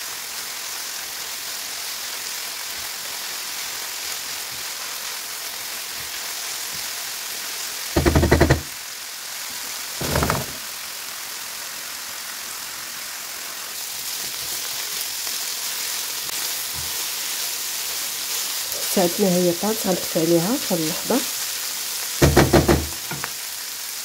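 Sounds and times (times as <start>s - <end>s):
meat sizzling in a frying pan: 0.0s - 24.0s
rapid rattling knock: 8.0s - 8.7s, 22.2s - 23.2s.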